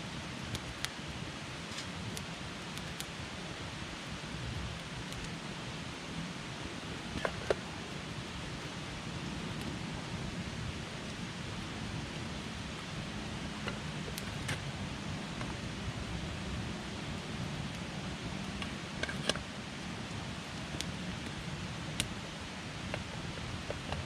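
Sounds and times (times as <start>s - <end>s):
campfire crackles and pops: 0.0s - 24.0s
campfire hissing: 0.0s - 24.0s.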